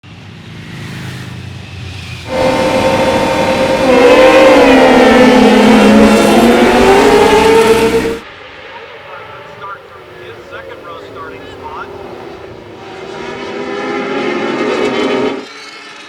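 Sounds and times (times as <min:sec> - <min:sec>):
racing motorcycle engine high revs: 0:01.2 - 0:08.2.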